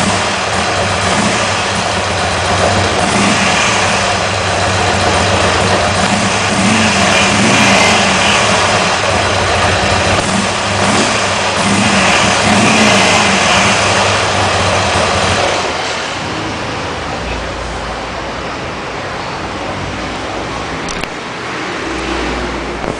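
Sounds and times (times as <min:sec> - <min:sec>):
motorcycle engine revving: 0:00.0 - 0:16.6.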